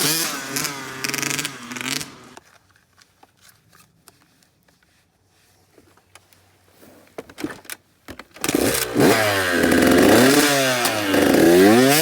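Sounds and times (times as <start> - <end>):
dirt bike engine revving: 0.0 - 2.4, 8.4 - 12.0.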